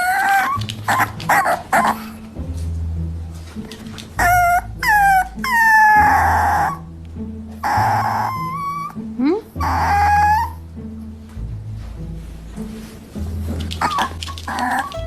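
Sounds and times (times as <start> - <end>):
dog whining cries: 0.0 - 2.2, 4.2 - 6.8, 7.6 - 9.0, 9.6 - 10.6, 13.8 - 15.0
dog yipping: 0.0 - 2.2, 4.2 - 6.8, 7.6 - 9.0, 9.6 - 10.6, 13.8 - 15.0.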